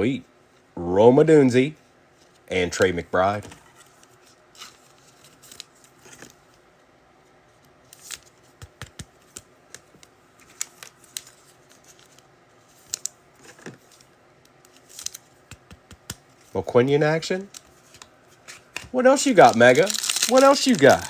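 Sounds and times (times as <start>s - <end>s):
trading cards clicking and snapping: 8.0s - 9.9s, 15.0s - 16.3s.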